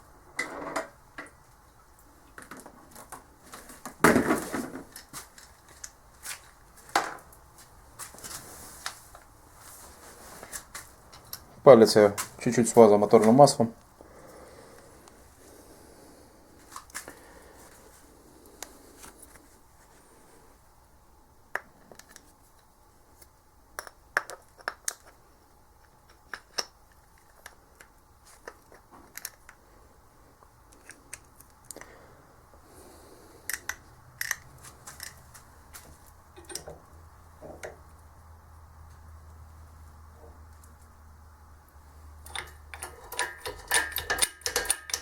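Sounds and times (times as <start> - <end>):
clicks of small metal parts: 42.2 - 45.0.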